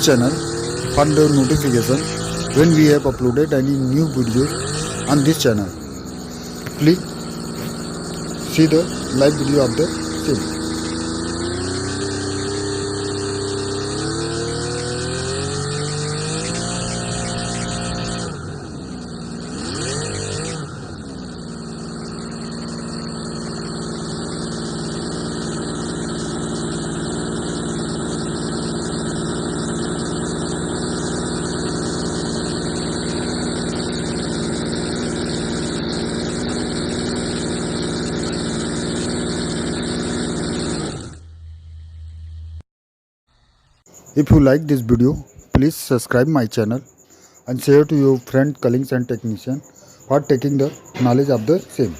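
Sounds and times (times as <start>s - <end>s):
model engine running: 0.0s - 42.6s, 43.4s - 51.9s.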